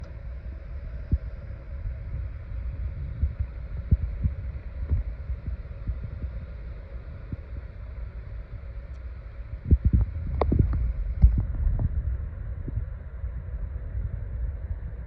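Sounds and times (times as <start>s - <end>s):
wind buffeting microphone: 0.9s - 7.8s, 9.6s - 15.0s.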